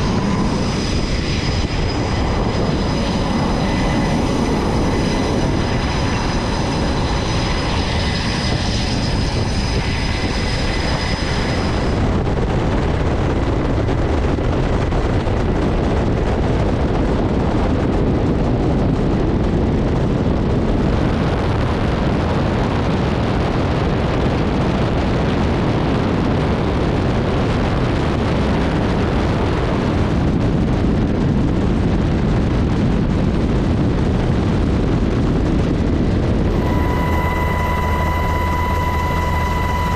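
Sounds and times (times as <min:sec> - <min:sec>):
high whine: 0:00.0 - 0:15.0, 0:36.3 - 0:39.9
jet engines roaring: 0:00.0 - 0:39.9.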